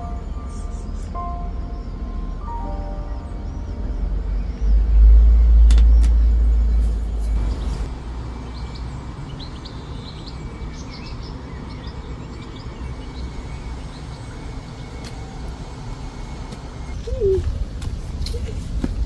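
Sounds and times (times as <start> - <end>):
small birds chirping: 0.0 - 19.0
steady low rumble: 0.0 - 19.0.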